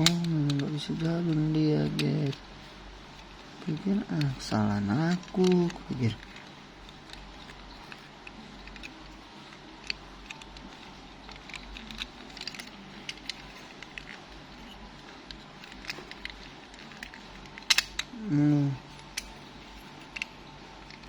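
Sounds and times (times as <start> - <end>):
toy car parts clicking: 0.0 - 2.4, 3.7 - 9.2, 11.3 - 14.7, 15.3 - 18.1
low background hum: 0.0 - 21.0.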